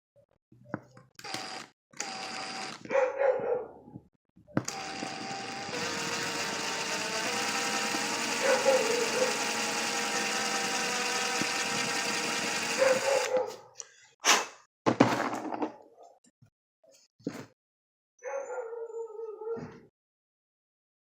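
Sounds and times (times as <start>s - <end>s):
small motor whining: 1.2s - 2.9s, 4.6s - 13.4s.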